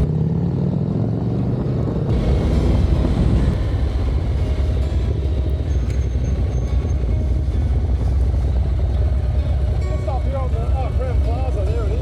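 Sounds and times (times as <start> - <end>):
motorcycle engine rumble: 1.2 - 12.0
wind noise on microphone: 1.4 - 9.8.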